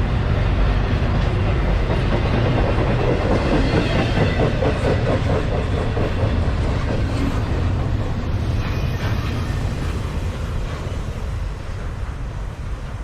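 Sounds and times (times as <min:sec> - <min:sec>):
freight train rumbling past: 0:00.0 - 0:13.0
train wheels clacking on rail joints: 0:00.0 - 0:13.0.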